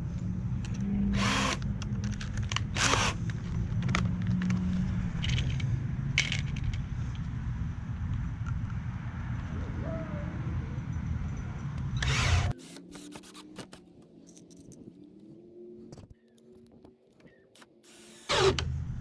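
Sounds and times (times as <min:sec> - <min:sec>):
drill driving screws into wood: 0:01.1 - 0:01.6, 0:02.7 - 0:03.3, 0:12.0 - 0:13.8, 0:17.8 - 0:18.8.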